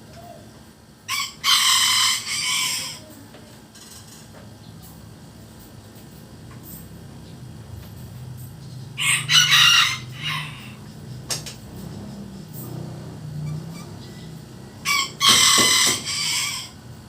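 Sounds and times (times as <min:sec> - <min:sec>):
steady low hum: 0:00.0 - 0:17.0
rooster crowing: 0:01.1 - 0:03.1, 0:09.0 - 0:11.0, 0:13.5 - 0:16.9.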